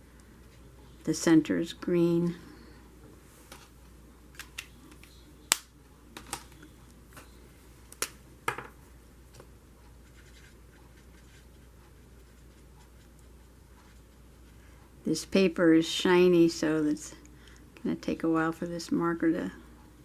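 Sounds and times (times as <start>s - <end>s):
faint room hiss: 0.0s - 20.0s
marker scratching on coated paper: 10.0s - 14.6s.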